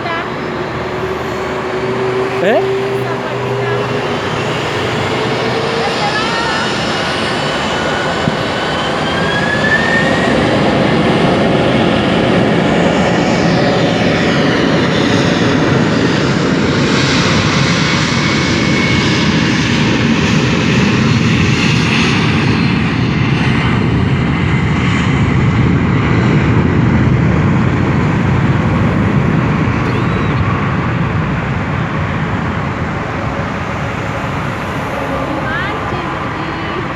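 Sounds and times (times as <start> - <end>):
jet engines roaring: 0.0 - 36.9.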